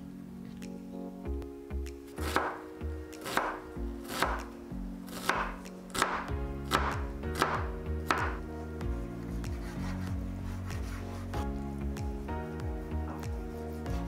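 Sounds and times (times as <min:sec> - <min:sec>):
knife chopping on wooden board: 0:02.2 - 0:02.6, 0:03.2 - 0:04.5, 0:05.1 - 0:08.4.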